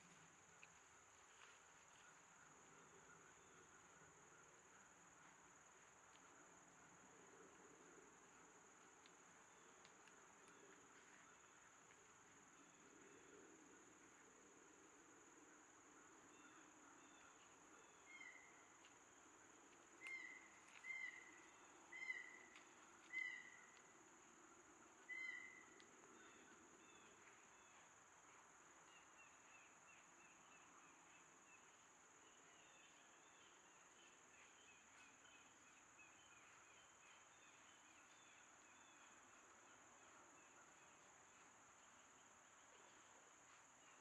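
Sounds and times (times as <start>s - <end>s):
faint bird calls: 16.3s - 18.9s, 20.0s - 24.0s, 25.0s - 41.1s.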